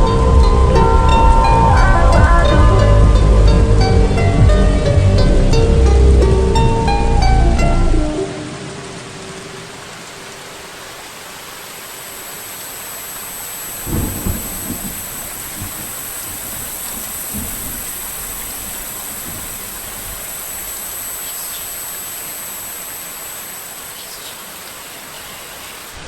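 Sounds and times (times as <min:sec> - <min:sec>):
heavy rain: 0:00.0 - 0:26.0
thunder rolling: 0:13.2 - 0:23.6.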